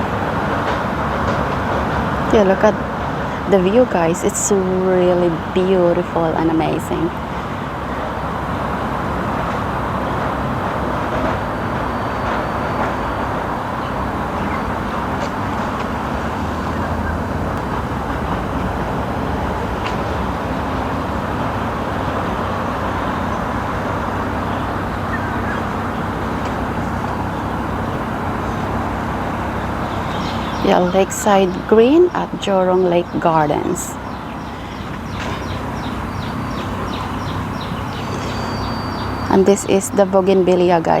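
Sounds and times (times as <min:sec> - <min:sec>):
traffic-like hum: 0:00.0 - 0:41.0.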